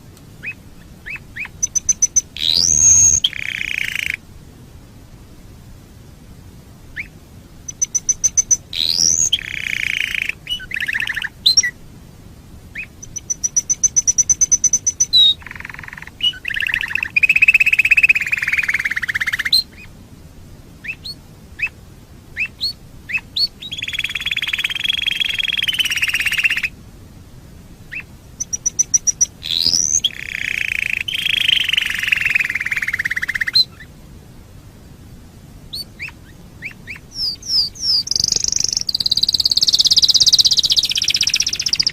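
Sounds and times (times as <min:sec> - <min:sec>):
canary singing: 0:00.4 - 0:04.2, 0:06.9 - 0:11.8, 0:12.7 - 0:19.9, 0:20.8 - 0:21.8, 0:22.4 - 0:26.8, 0:27.9 - 0:33.9, 0:35.7 - 0:41.9.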